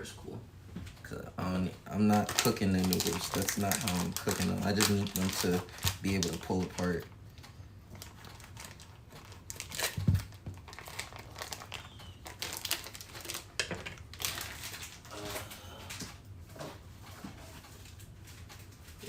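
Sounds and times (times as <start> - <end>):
plastic bag crinkling: 1.4 - 16.1.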